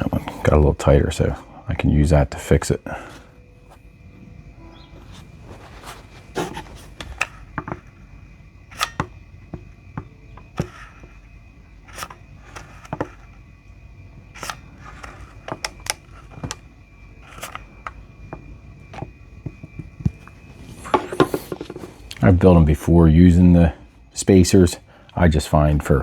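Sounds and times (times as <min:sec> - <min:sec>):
light clicks and knocks on workbench: 0:17.2 - 0:22.0.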